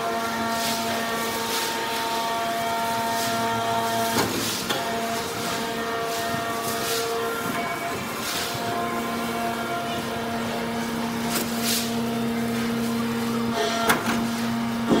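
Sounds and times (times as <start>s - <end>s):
hydraulic baler motor humming: 0.0s - 15.0s.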